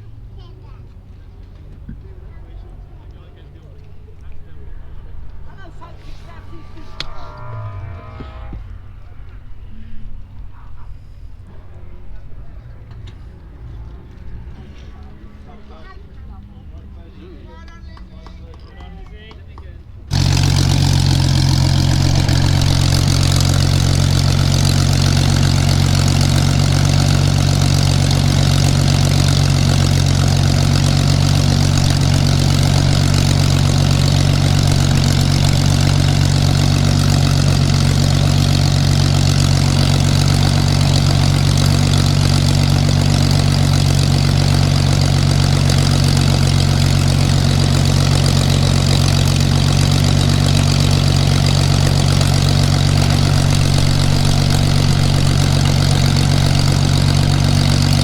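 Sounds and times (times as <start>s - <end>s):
piston aircraft engine drone: 4.6s - 11.5s, 20.1s - 58.0s.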